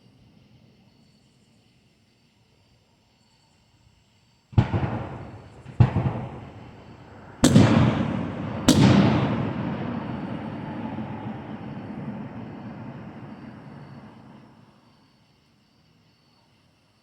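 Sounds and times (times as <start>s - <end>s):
faint insect chirring: 0.0s - 7.4s, 11.2s - 17.0s
fireworks bursting with echo: 4.5s - 14.8s.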